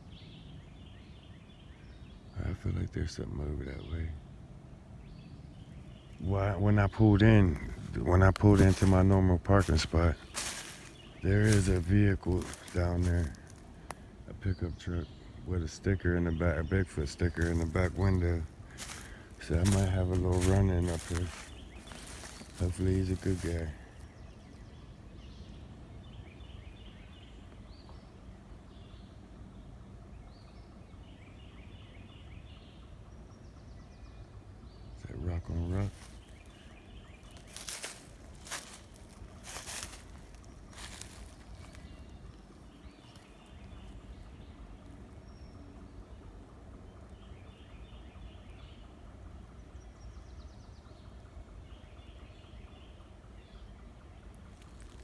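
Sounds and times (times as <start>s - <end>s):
low outdoor rumble: 0.0s - 55.0s
bird chirping: 5.0s - 55.0s.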